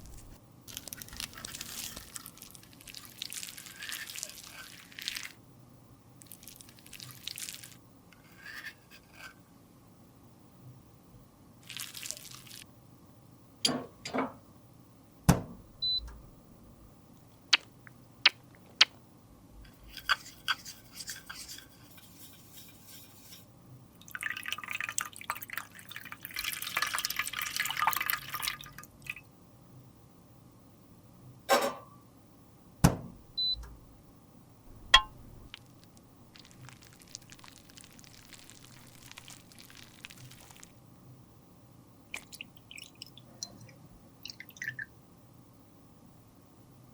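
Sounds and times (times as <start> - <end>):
scraping or mixing: 19.7 - 23.5.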